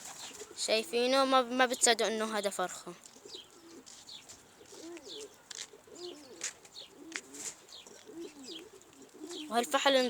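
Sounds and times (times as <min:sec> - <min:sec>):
pigeons cooing: 0:03.2 - 0:10.0.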